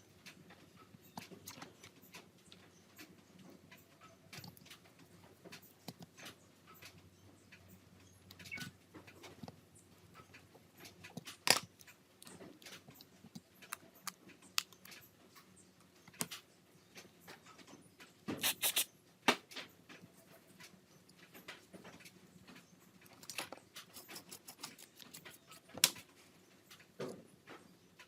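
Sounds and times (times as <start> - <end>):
small clicks and taps: 0.2 - 18.4.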